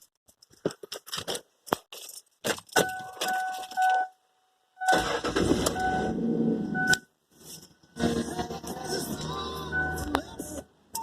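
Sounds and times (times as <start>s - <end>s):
truck engine cranking and starting: 4.9s - 7.0s
warning chime tone: 9.6s - 10.2s.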